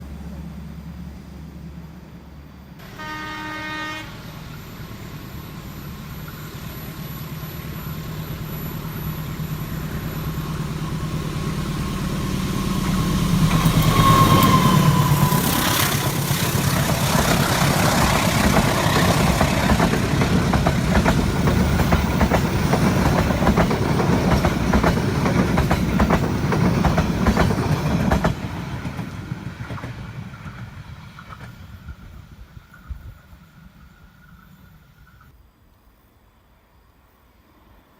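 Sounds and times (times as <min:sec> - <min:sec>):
train engine drone: 0:00.0 - 0:37.9
short horn note: 0:02.8 - 0:04.4
wagons rattling over rail joints: 0:13.4 - 0:31.6.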